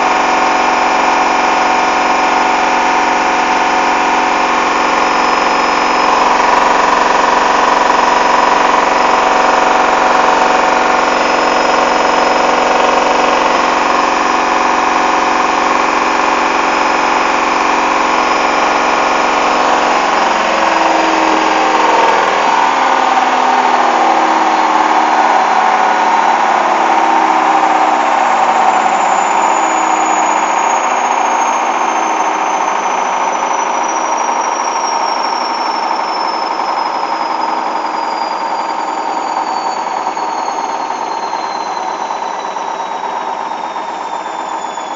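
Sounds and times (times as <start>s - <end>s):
rhythmic pulsing: 0.0s - 34.6s
high whine falling in pitch: 0.0s - 44.9s
washing machine spinning: 0.0s - 44.9s.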